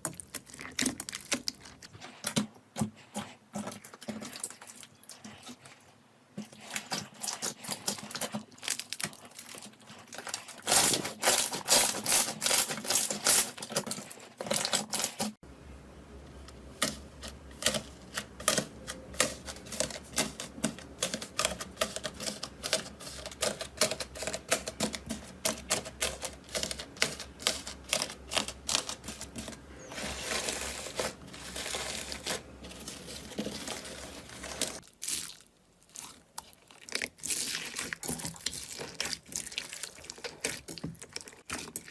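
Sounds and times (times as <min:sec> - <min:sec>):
steady low hum: 0:15.4 - 0:34.8.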